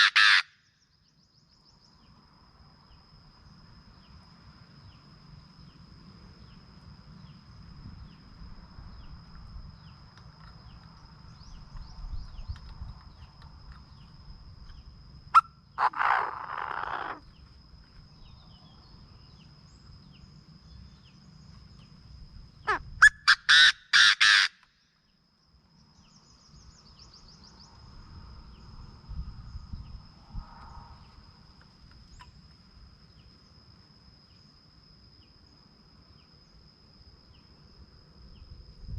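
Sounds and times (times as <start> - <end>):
francolin harsh call: 0.0 - 0.7, 15.3 - 17.3, 22.6 - 24.7
faint insect drone: 0.0 - 38.9.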